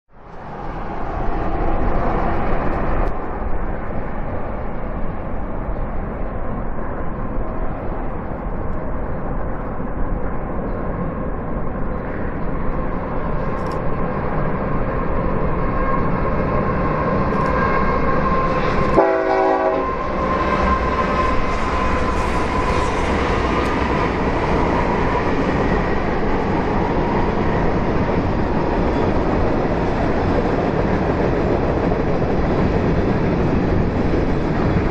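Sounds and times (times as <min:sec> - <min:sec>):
diesel horn blast: 0:19.0 - 0:20.0.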